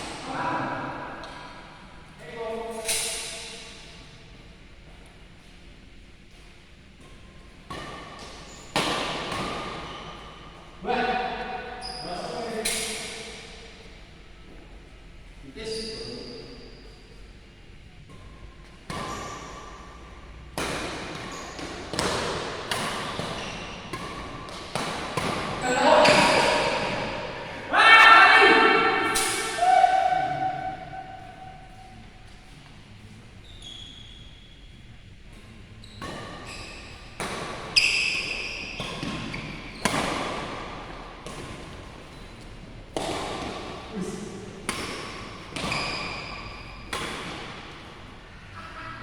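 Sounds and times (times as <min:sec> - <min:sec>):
racket hitting shuttlecock: 0:07.1 - 0:10.3, 0:18.8 - 0:27.8, 0:28.5 - 0:31.8, 0:36.0 - 0:43.9, 0:44.6 - 0:48.2
rackets striking shuttlecock: 0:29.0 - 0:29.8.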